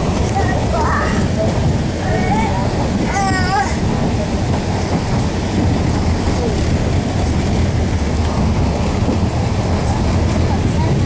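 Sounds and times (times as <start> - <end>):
train coach rumbling on track: 0.0 - 11.0.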